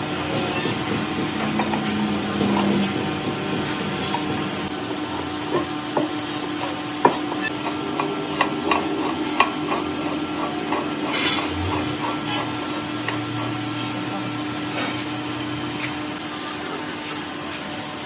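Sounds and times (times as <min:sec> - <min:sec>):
steady machine hum: 0:00.0 - 0:16.5.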